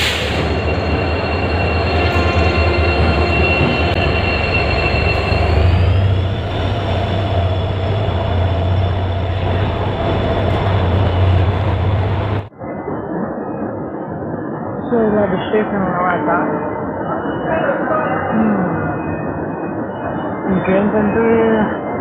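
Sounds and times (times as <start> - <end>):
high wheel squeal: 0.0 - 12.4
train rumbling past: 0.0 - 12.6.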